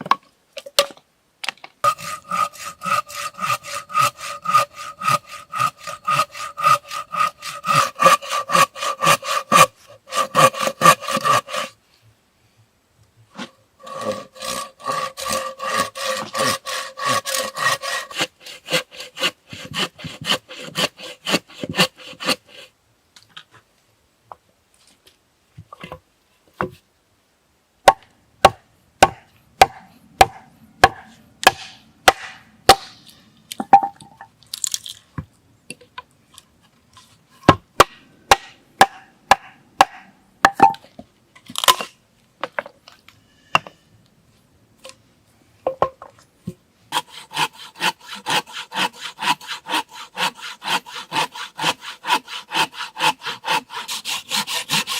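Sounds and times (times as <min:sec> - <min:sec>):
hand saw cutting wood: 0:01.8 - 0:11.8, 0:13.3 - 0:22.7, 0:46.9 - 0:54.9
sharp strikes on wood: 0:27.8 - 0:34.0, 0:37.4 - 0:40.8.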